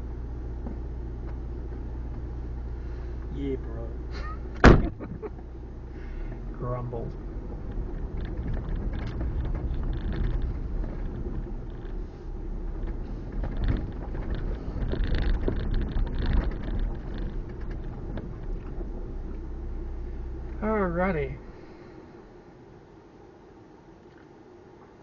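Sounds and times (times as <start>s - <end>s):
car engine and road rumble: 0.0s - 25.0s
gravel clicking under tyres: 6.1s - 22.0s.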